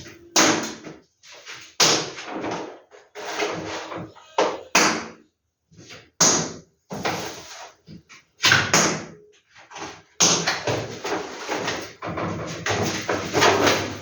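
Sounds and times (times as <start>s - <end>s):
paper rustling and knocks: 9.6s - 14.0s.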